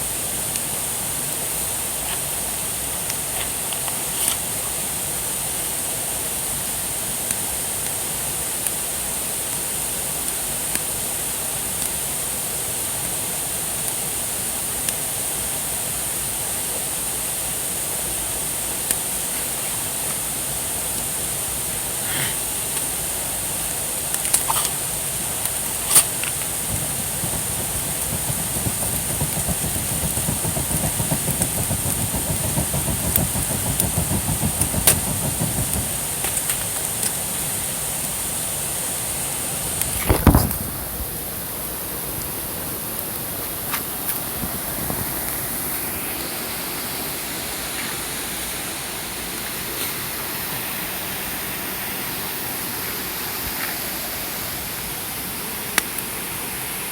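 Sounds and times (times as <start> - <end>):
campfire rumble and hiss: 0.0 - 56.9
sharp fire crackles: 24.2 - 38.1, 39.6 - 42.2.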